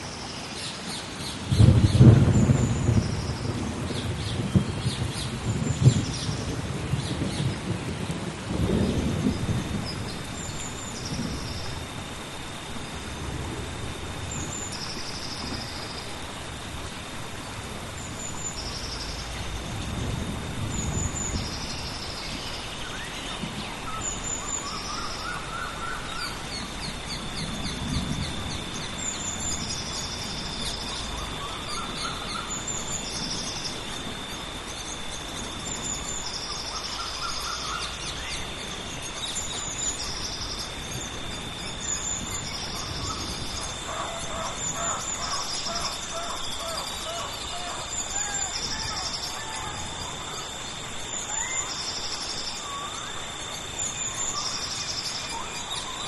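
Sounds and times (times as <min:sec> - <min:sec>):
steady rain: 0:00.0 - 0:56.0
rolling thunder: 0:01.4 - 0:12.0, 0:17.5 - 0:24.9, 0:26.0 - 0:36.3.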